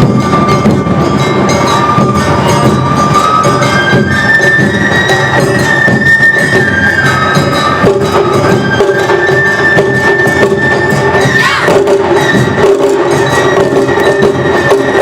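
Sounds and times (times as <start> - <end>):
fast driving drums and percussion: 0.0 - 15.0
bamboo flute long high notes: 2.0 - 12.0.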